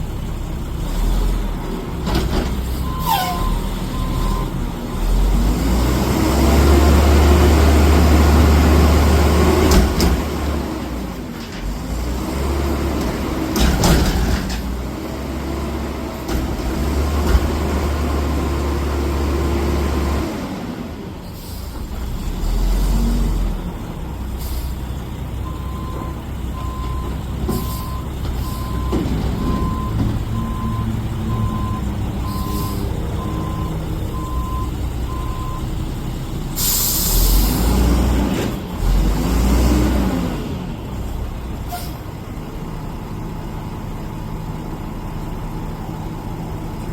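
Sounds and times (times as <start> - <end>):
garbage truck engine running: 0.0 - 39.2
reversing alarm beeps: 2.8 - 4.6, 25.5 - 35.7
sharp hiss of air: 36.6 - 37.6.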